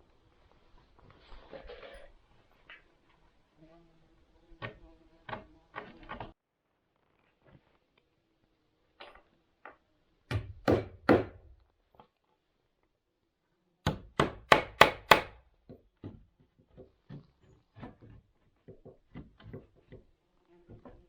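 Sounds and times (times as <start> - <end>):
hand tool striking wood: 10.3 - 11.6, 13.9 - 21.0.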